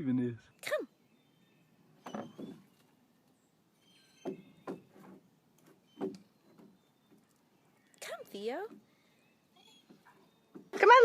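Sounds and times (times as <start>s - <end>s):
soft knocks: 4.2s - 7.2s.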